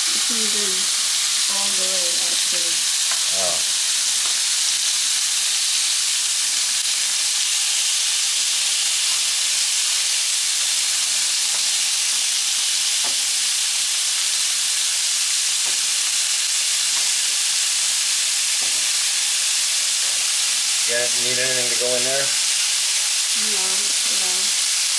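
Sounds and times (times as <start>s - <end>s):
garlic sizzling in oil: 0.0s - 24.9s.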